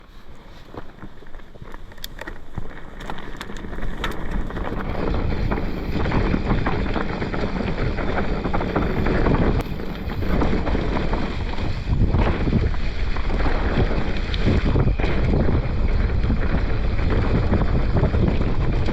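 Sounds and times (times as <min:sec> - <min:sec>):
bike tyres rumbling on dirt: 0:00.0 - 0:18.9
wind rushing over microphone: 0:00.0 - 0:18.9.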